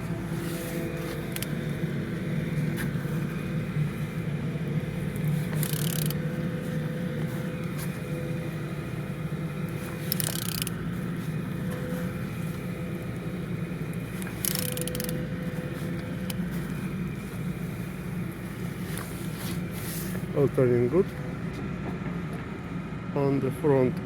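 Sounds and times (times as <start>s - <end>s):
engine being turned over by hand: 5.3s - 6.3s, 9.9s - 10.8s, 14.1s - 15.3s.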